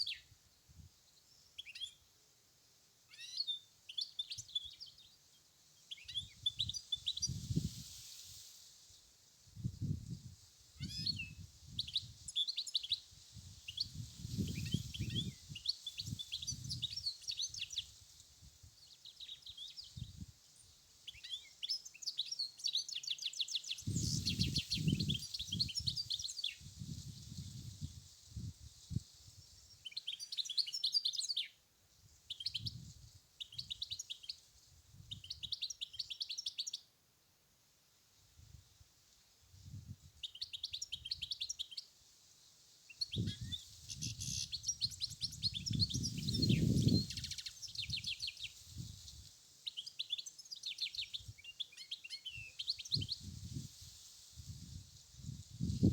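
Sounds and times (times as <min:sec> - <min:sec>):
steady high hiss: 0:06.8 - 0:12.4
finch singing: 0:42.9 - 0:48.6.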